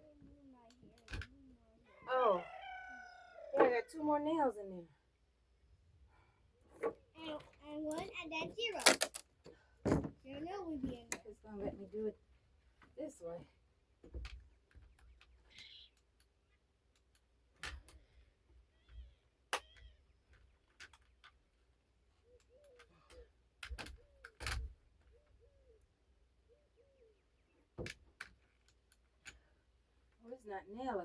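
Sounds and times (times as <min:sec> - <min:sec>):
bird calling: 0:25.0 - 0:27.6.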